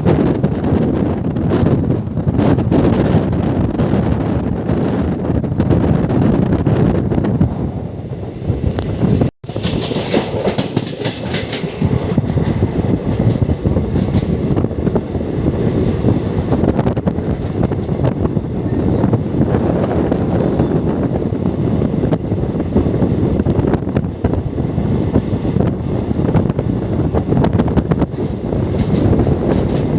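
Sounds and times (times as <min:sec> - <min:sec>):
rushing noise: 0:06.0 - 0:21.8
train wheels clattering over rails: 0:07.2 - 0:29.9.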